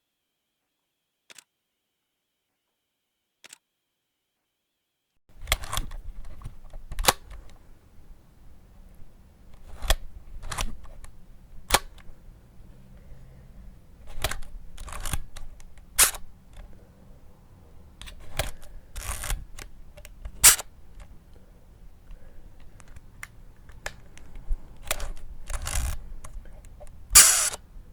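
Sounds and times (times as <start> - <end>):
camera shutter clicks: 14.1 - 16.6, 18.1 - 19.7, 20.3 - 21.1, 24.8 - 26.0, 27.2 - 27.6.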